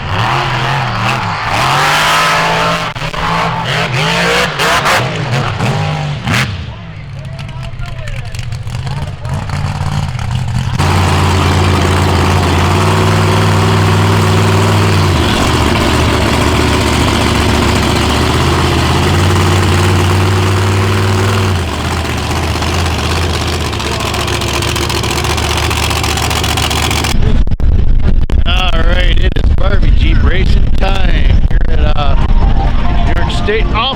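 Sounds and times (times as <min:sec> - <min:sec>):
vehicle engine at high revs: 0:00.0 - 0:27.2.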